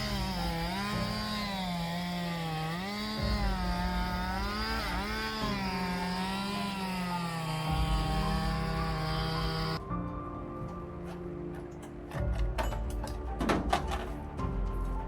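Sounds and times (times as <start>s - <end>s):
buzzing motor whine: 0.0s - 9.8s.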